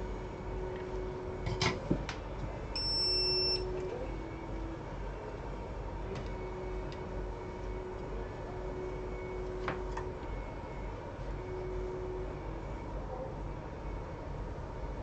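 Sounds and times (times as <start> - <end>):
low steady hum: 0.0 - 15.0
electronic beep: 2.8 - 3.7.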